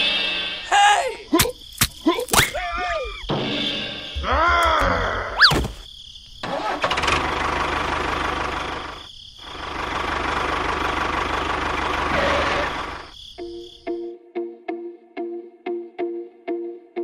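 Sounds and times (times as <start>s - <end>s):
tractor engine running: 6.4s - 13.2s.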